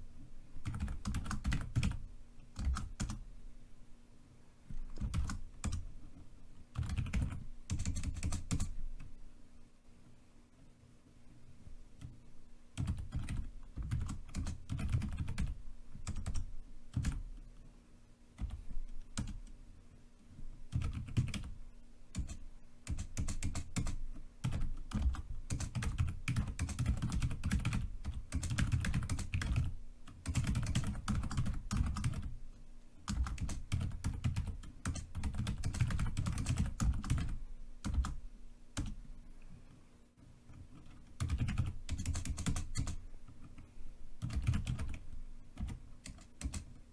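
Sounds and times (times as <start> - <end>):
typing on computer keyboard: 0.6 - 3.2, 4.9 - 5.9, 6.7 - 8.8, 12.8 - 17.3, 18.4 - 19.5, 20.7 - 32.3, 33.1 - 38.2, 38.8 - 39.0, 40.5 - 43.6, 44.2 - 46.8.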